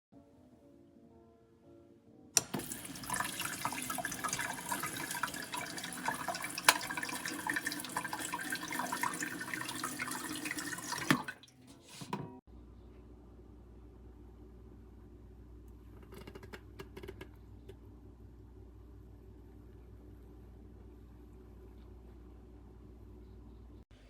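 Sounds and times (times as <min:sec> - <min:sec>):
water running from a tap: 0:02.4 - 0:11.6.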